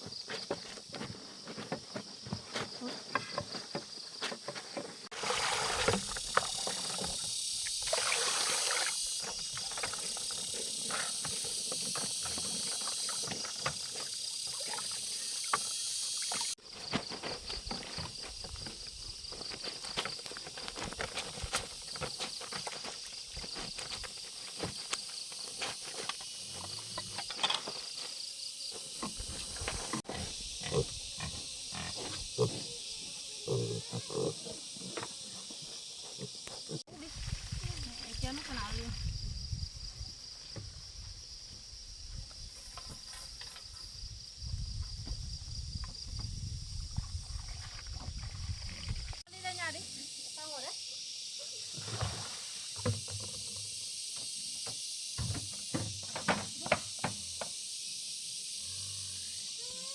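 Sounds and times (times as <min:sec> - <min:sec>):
insects chirping: 0:00.0 - 0:59.9
animal noises: 0:30.1 - 0:36.8.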